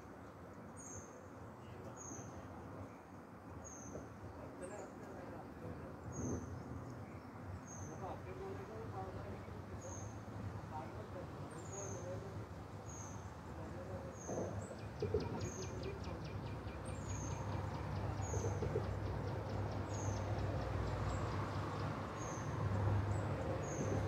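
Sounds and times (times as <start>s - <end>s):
songbird chirping: 11.4s - 24.0s.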